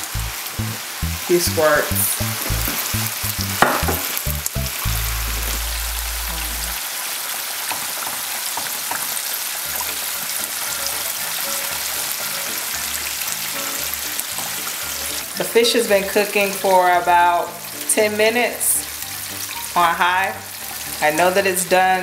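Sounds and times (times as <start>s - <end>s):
batter bubbling in frying oil: 0.0s - 15.3s
food sizzling in hot oil: 0.0s - 22.0s.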